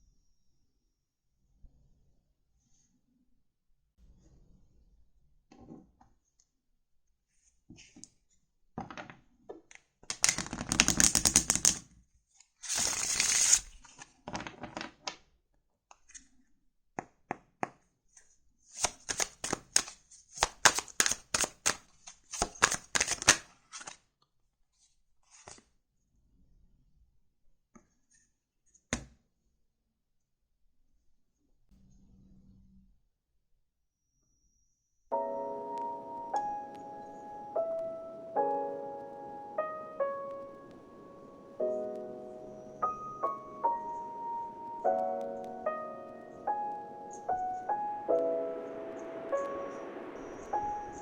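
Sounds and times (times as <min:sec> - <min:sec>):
cards riffling: 0:10.1 - 0:11.8, 0:12.6 - 0:14.0, 0:18.8 - 0:24.0
cards tapping and rustling: 0:10.1 - 0:11.8, 0:12.7 - 0:15.1, 0:18.8 - 0:24.0
rapid clicking of cards: 0:10.1 - 0:11.8, 0:12.7 - 0:14.9, 0:18.8 - 0:24.0.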